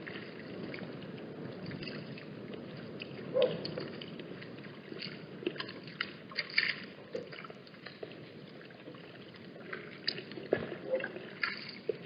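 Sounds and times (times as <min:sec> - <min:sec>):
wind noise: 0:00.0 - 0:07.1
water splashes and clicks: 0:00.0 - 0:12.0.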